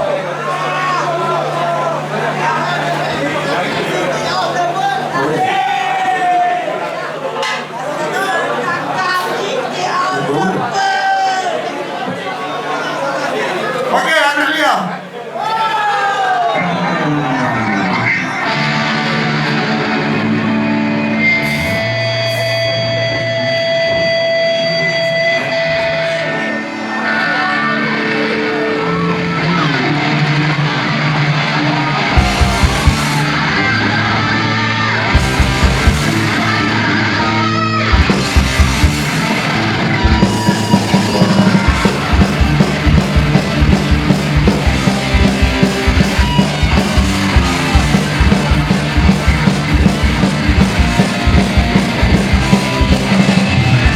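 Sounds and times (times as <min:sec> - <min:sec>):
distorted electric guitar: 0:16.6 - 0:53.9
punk rock band playing: 0:17.3 - 0:53.9
heavy drum hits: 0:32.2 - 0:33.4, 0:35.1 - 0:36.6, 0:37.9 - 0:53.9.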